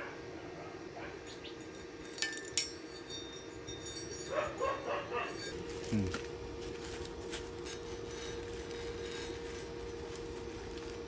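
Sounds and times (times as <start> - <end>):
sharp metallic clinks: 1.2 - 6.3.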